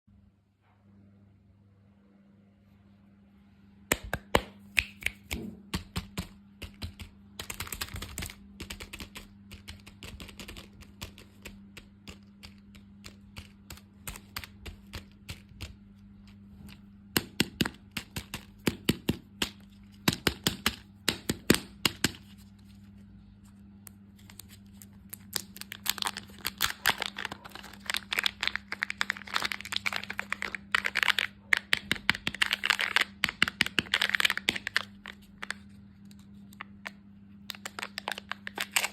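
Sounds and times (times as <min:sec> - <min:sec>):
faint low hum: 0:00.1 - 0:38.9
clicks and taps on packaging: 0:03.9 - 0:15.8, 0:17.1 - 0:22.2, 0:27.9 - 0:35.6
plastic packaging crinkling: 0:24.1 - 0:38.9.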